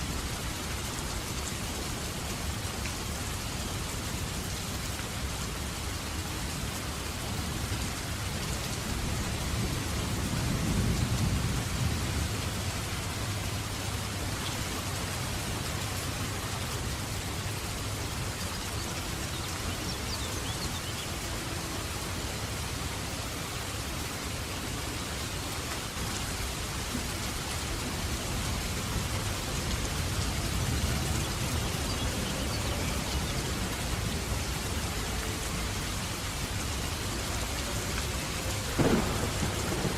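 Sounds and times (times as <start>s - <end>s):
steady rain falling: 0.0s - 39.9s
low rolling thunder: 8.9s - 13.2s, 38.6s - 39.9s.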